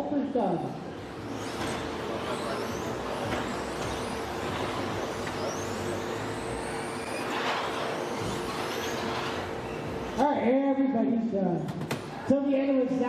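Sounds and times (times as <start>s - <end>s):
steady hum: 0.0s - 13.0s
electric motors whining: 0.7s - 10.4s.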